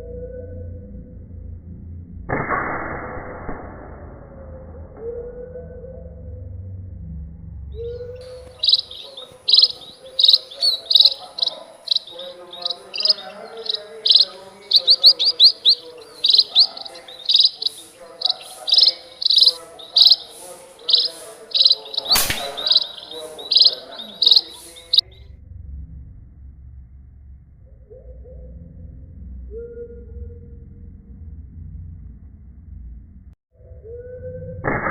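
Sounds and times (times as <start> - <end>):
sharp crack: 2.3 - 4.3, 12.6 - 24.7
small birds chirping: 7.8 - 25.3.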